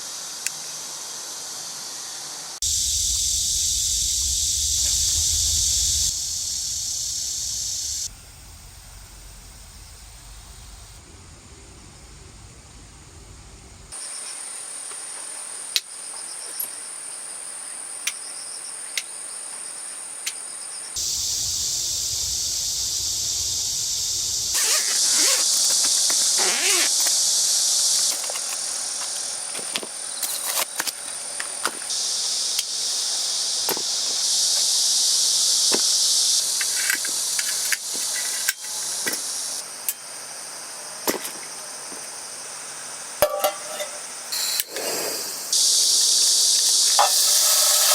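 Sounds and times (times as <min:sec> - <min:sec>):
insects chirring: 0:00.0 - 0:47.9
low rumble: 0:02.7 - 0:13.9, 0:21.1 - 0:24.6.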